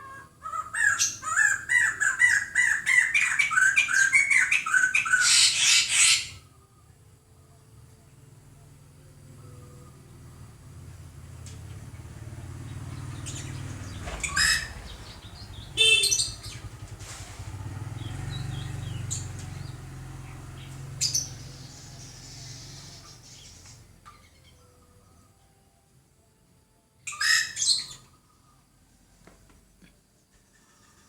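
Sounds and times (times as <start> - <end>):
birds calling: 0.0 - 6.5, 10.8 - 24.8, 27.1 - 28.7
low steady rumble: 6.3 - 26.5.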